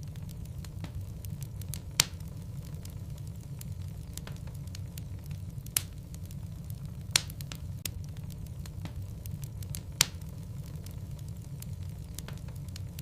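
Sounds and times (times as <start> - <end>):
fire crackles: 0.0 - 13.0
loud fire pops: 0.0 - 13.0
low rumble of flame: 0.0 - 13.0.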